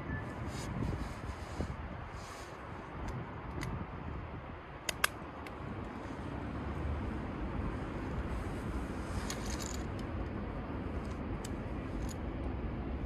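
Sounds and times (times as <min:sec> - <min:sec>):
sharp click: 0:04.8 - 0:05.6.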